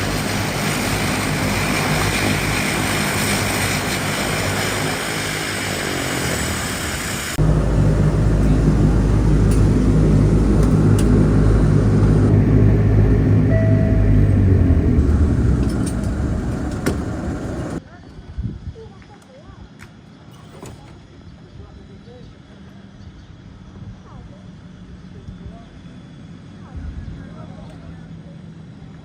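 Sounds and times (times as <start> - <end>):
turboprop engines droning: 0.0 - 17.8.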